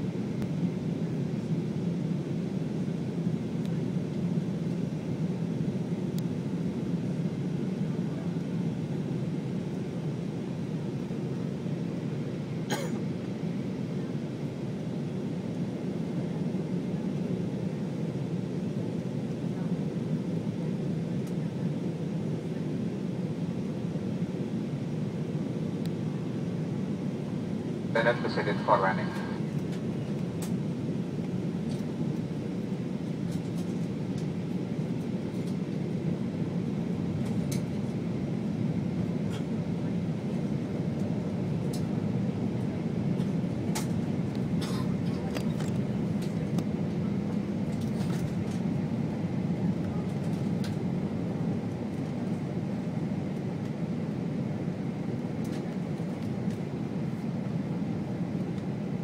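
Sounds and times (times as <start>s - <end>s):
aircraft cabin engine drone: 0.0s - 59.0s.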